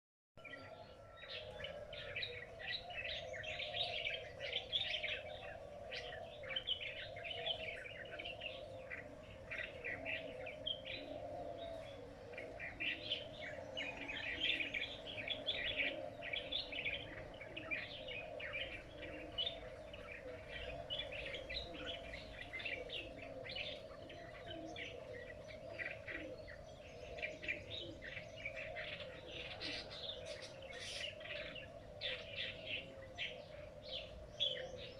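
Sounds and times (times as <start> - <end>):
small birds twittering: 0.4 - 34.9.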